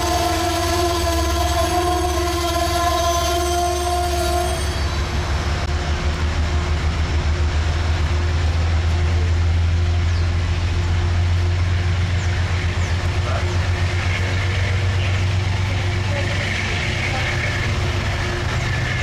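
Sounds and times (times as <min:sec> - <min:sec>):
train horn: 0:00.0 - 0:05.2, 0:13.8 - 0:19.0
train rumbling: 0:00.0 - 0:19.0.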